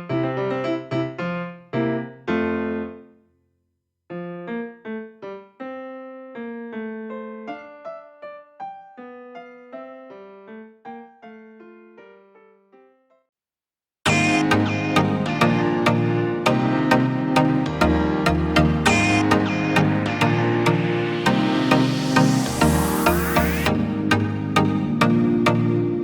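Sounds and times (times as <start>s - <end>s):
solo piano music: 0.0s - 3.2s, 4.1s - 13.2s.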